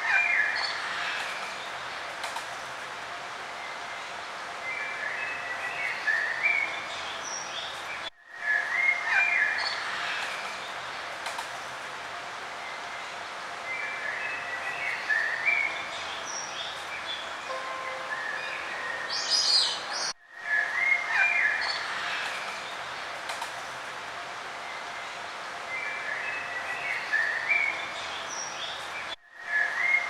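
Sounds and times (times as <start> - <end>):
steady outdoor hiss: 0.0 - 30.0
birds singing and chirping: 13.7 - 22.3.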